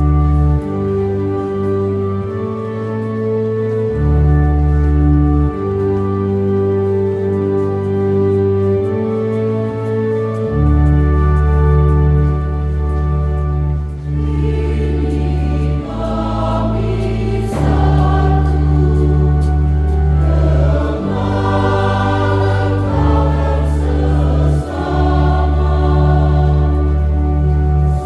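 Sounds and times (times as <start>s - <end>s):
long held bass notes: 11.0s - 28.0s
choir singing a hymn: 14.0s - 28.0s.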